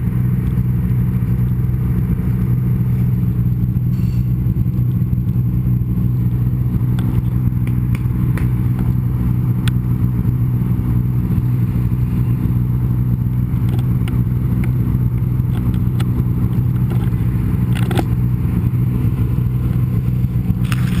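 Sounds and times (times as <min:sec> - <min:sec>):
snowmobile engine running: 0:00.0 - 0:21.0
sharp clicks and knocks: 0:13.6 - 0:16.1, 0:16.7 - 0:18.2.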